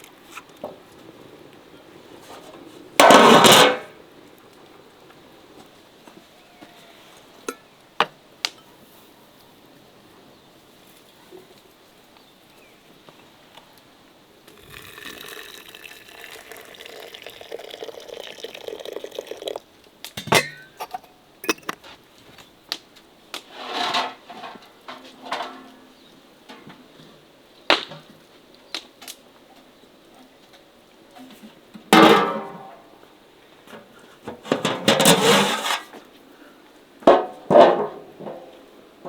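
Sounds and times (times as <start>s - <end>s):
water pouring into pot: 14.5s - 19.7s
utensils clinking on cookware: 20.2s - 21.8s
scraping rustles: 23.3s - 27.2s, 33.6s - 36.1s.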